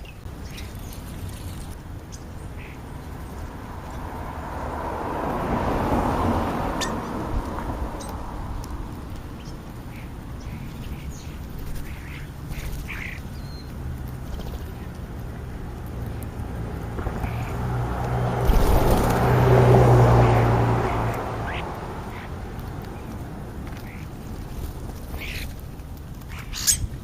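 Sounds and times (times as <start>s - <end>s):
vehicle passing: 0.3s - 26.5s
short bird calls: 26.3s - 27.0s.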